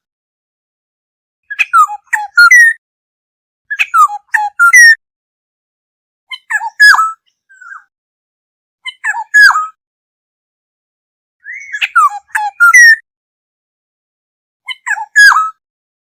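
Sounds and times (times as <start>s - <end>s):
bird singing fluty whistles: 1.5s - 2.8s, 11.4s - 13.0s.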